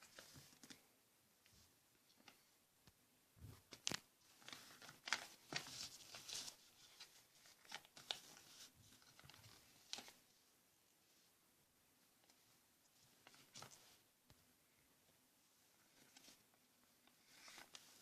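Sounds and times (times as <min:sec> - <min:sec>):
paper rustling and crinkling: 0:00.0 - 0:00.9, 0:03.4 - 0:10.2, 0:13.0 - 0:14.0, 0:15.8 - 0:18.0.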